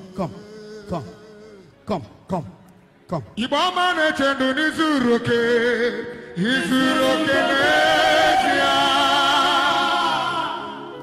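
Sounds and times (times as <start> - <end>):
person singing with vibrato: 3.4 - 11.0.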